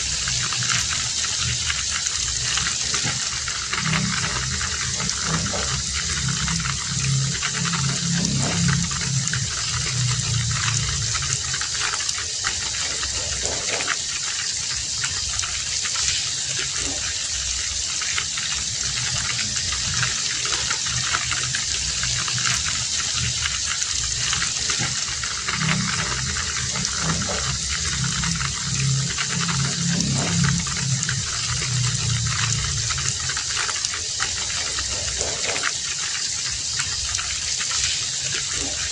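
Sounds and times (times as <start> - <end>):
low rumble: 0.0 - 12.2, 18.5 - 35.3
heavy rain: 0.0 - 38.9.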